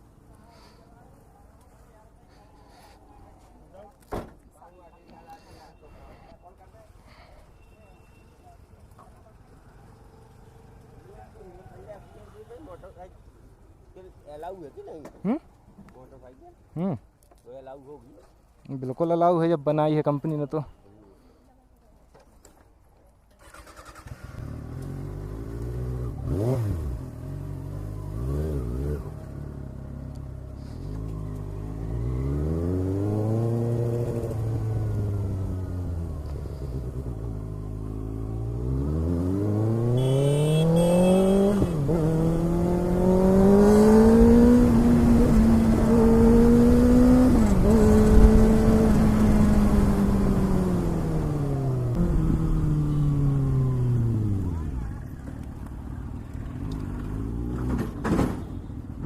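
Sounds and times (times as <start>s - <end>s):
motorcycle engine revving and accelerating: 23.6s - 55.1s, 56.3s - 58.0s.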